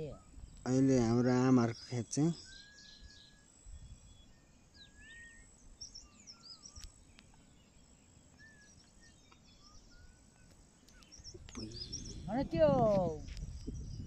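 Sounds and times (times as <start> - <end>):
bird whistles and chirps: 2.4 - 6.9, 8.3 - 14.0.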